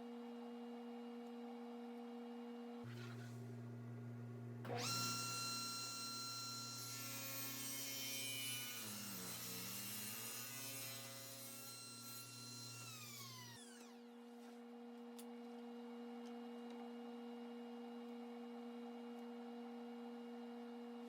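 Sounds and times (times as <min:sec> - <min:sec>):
table saw whine: 0:04.7 - 0:14.2.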